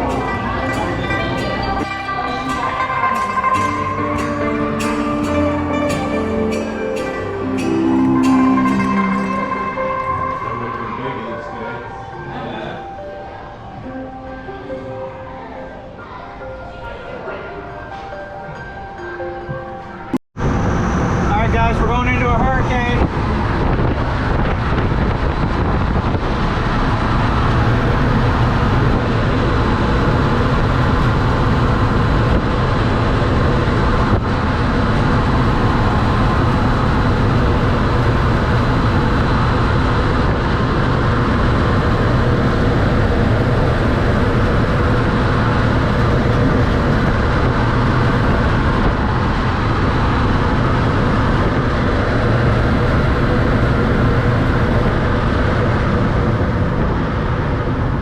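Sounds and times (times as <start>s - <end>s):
fans blowing loud wind: 0.0s - 58.0s.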